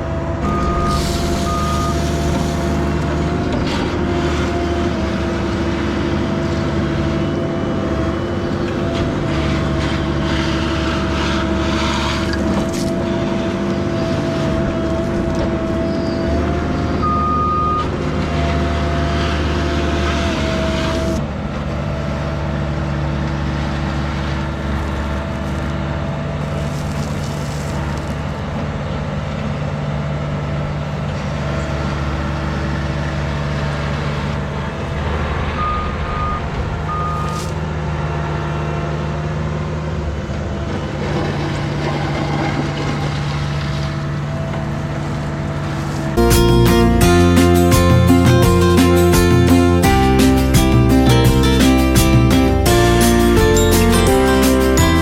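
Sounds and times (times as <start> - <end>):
diesel engine running: 0.0 - 55.0
backup alarm beeps: 0.4 - 3.0, 17.0 - 17.9, 35.6 - 37.4.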